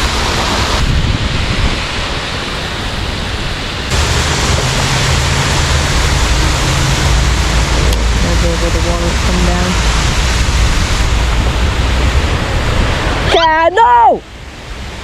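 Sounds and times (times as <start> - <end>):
falling water hissing: 3.8 - 13.3.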